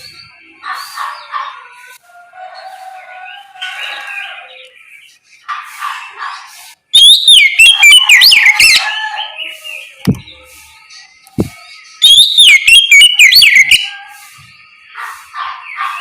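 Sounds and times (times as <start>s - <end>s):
bird singing: 0.0s - 1.9s, 6.9s - 16.0s.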